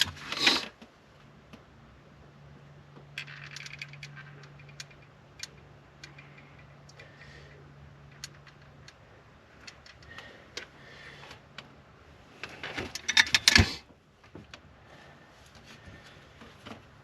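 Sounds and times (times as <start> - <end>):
light clicks of small hard parts: 2.9 - 7.3, 8.0 - 11.7.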